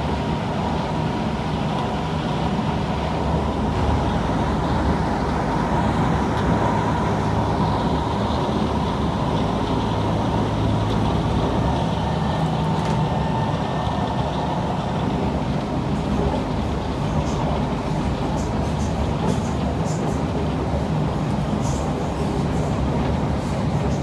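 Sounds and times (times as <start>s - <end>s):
train wheels rumbling: 0.0s - 24.0s.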